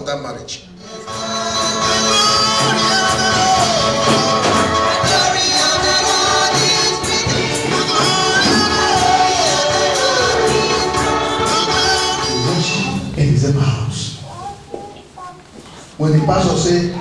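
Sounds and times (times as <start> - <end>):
choir singing gospel music: 0.8 - 13.9
tambourine beat: 1.6 - 13.1.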